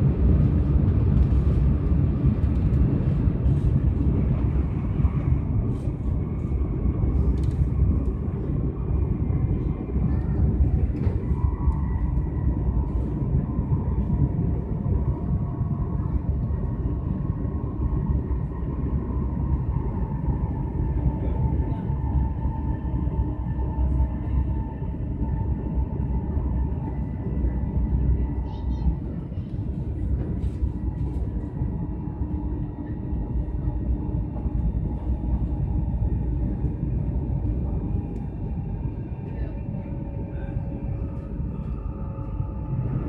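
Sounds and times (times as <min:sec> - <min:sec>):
train wheels rumbling on rails: 0:00.0 - 0:43.0.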